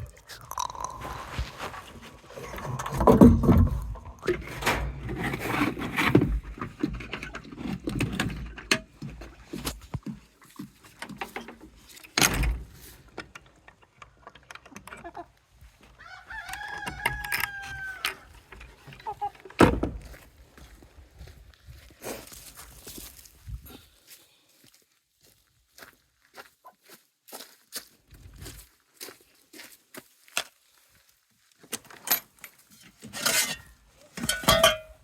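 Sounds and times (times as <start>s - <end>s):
chickens clucking and scratching: 13.0s - 19.6s
rooster crowing: 16.0s - 18.3s.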